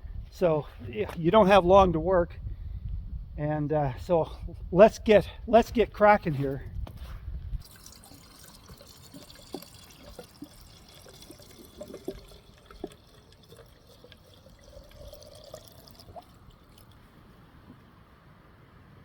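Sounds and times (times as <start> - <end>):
water dripping: 7.6 - 17.3.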